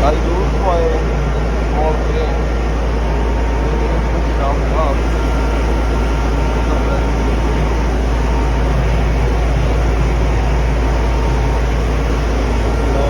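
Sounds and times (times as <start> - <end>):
loud machinery rumble: 0.0 - 13.0.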